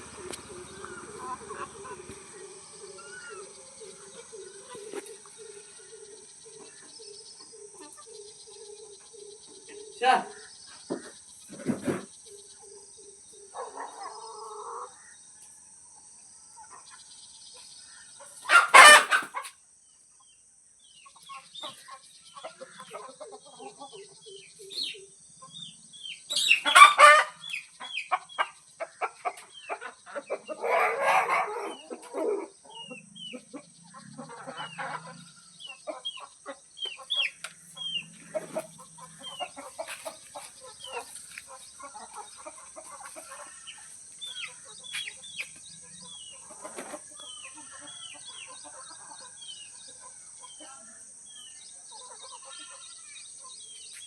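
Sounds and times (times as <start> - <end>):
hen clucking: 0.0 - 8.2, 18.2 - 19.5, 26.3 - 50.6
chicks peeping: 0.0 - 9.9, 16.6 - 19.5, 21.0 - 50.7
crickets droning: 0.0 - 54.0.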